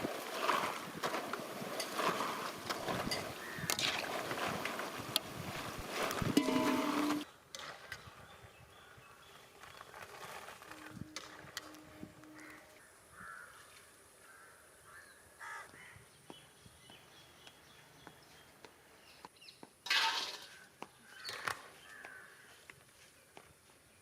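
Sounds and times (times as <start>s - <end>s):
crows cawing: 12.3s - 16.0s, 21.0s - 22.6s.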